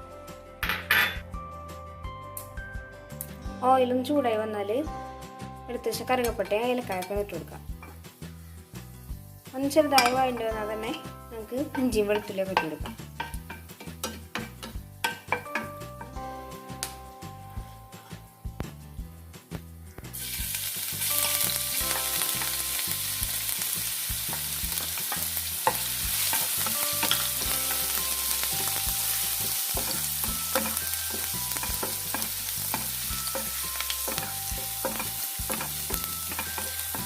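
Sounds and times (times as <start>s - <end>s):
food sizzling in hot oil: 5.0s - 18.8s, 20.0s - 37.0s
spatula scraping a pan: 11.6s - 16.2s, 23.4s - 37.0s.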